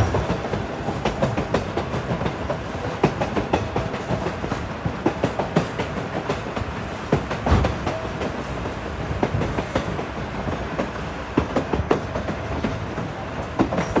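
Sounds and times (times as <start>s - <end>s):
train car rumbling: 0.0s - 14.0s
wheels clacking and knocking: 0.0s - 14.0s.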